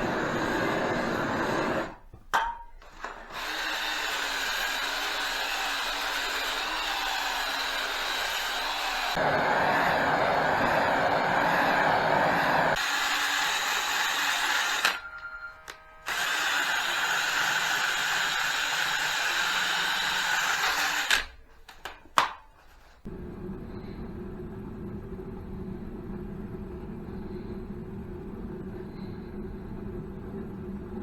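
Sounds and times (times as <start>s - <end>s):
power tool running: 3.0s - 21.3s
low steady running sound: 23.1s - 31.0s.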